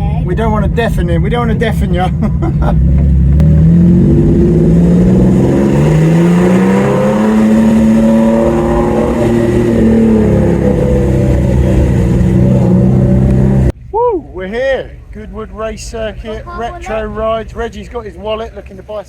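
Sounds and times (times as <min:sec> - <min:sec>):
car engine accelerating in tunnel: 0:00.3 - 0:13.8.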